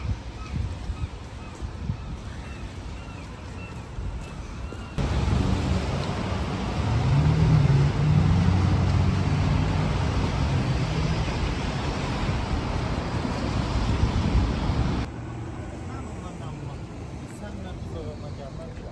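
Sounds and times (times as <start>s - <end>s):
rain hiss: 5.0s - 15.1s
vehicle engine drone: 5.0s - 16.9s.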